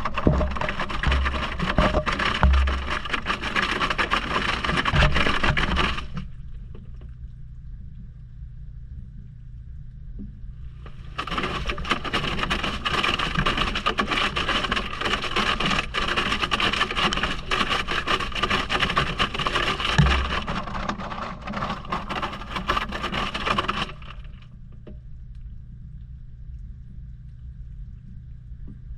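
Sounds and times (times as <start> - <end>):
water churning and splashing: 0.0 - 6.5, 10.9 - 24.4
washing machine hum: 0.0 - 8.2, 10.5 - 28.9.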